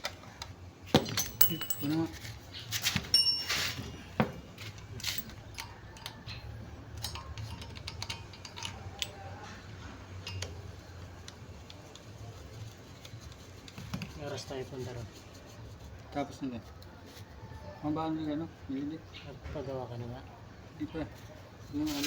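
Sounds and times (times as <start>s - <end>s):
metallic clicks of tools: 4.6s - 9.3s, 10.2s - 10.6s.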